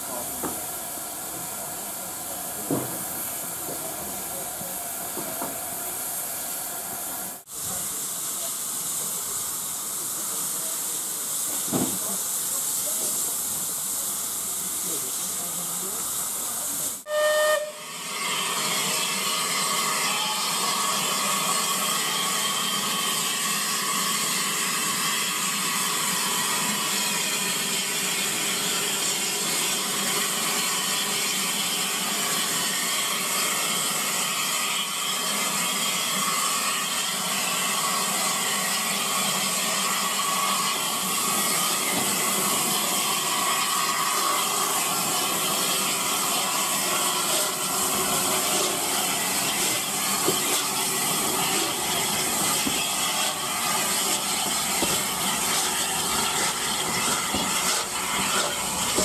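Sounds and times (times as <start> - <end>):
steam locomotive hissing: 0.0 - 59.0
steam whistle toot: 17.0 - 18.2.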